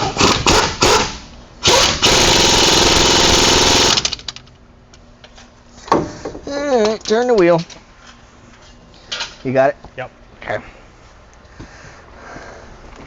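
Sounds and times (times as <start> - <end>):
impact wrench running: 0.0 - 4.3.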